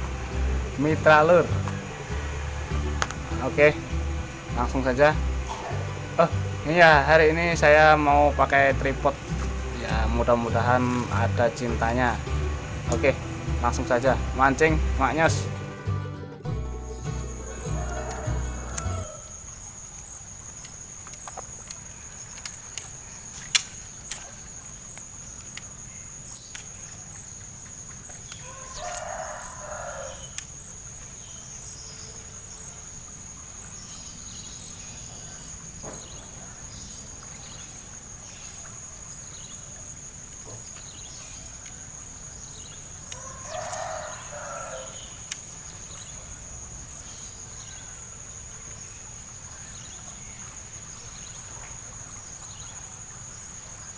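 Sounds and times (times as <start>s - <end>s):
high insect drone: 0.0s - 53.9s
rooster crowing: 16.8s - 19.5s, 28.4s - 30.4s, 43.1s - 45.2s.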